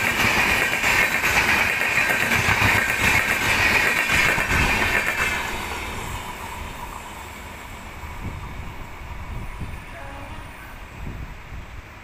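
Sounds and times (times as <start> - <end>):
train rushing past on rails: 0.0 - 12.0.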